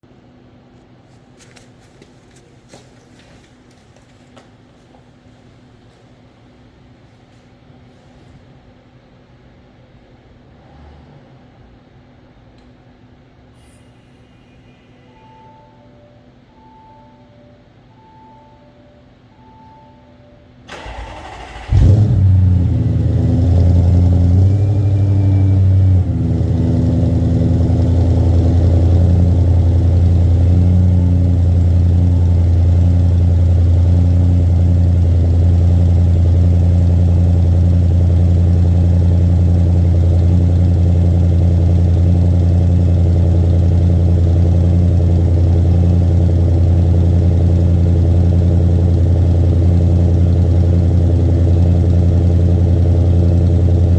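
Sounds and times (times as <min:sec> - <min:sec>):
car engine starting and idling: 0:20.7 - 0:53.9.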